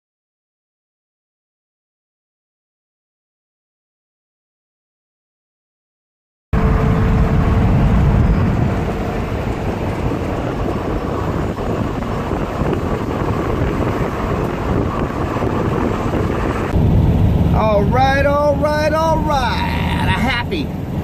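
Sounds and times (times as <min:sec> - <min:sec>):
vehicle engine and road rumble: 0:06.6 - 0:21.0
wind buffeting microphone: 0:06.6 - 0:21.0.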